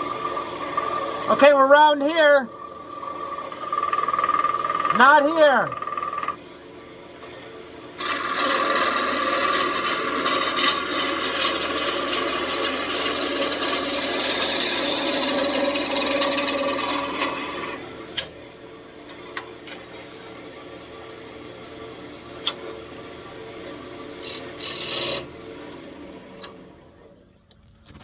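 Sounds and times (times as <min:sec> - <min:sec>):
lathe tool scraping wood: 0:08.0 - 0:17.8, 0:24.2 - 0:25.2.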